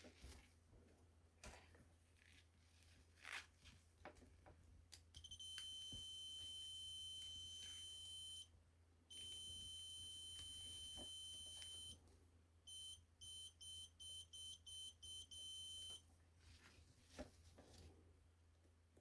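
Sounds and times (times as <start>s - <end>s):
continuity tester beeping: 5.2s - 8.5s, 9.1s - 12.0s, 12.7s - 16.0s.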